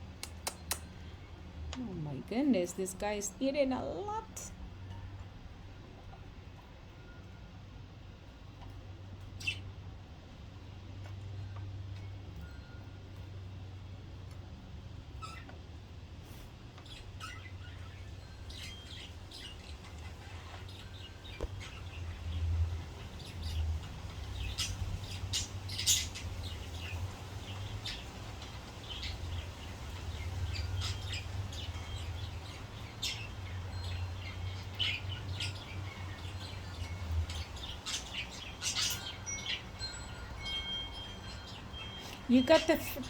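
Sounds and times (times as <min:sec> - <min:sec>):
budgerigars chirping: 0:09.3 - 0:09.7, 0:16.8 - 0:40.4.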